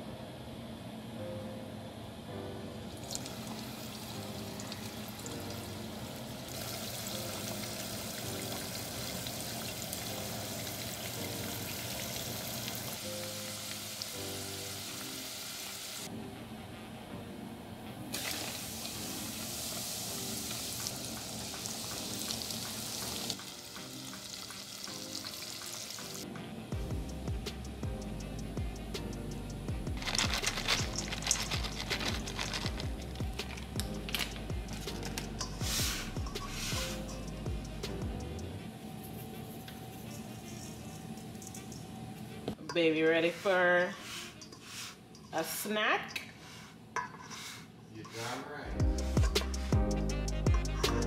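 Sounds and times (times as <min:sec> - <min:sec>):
background music: 0:00.0 - 0:46.6, 0:48.2 - 0:51.0
food sizzling in hot oil: 0:03.0 - 0:16.1, 0:18.1 - 0:26.2, 0:34.9 - 0:37.3.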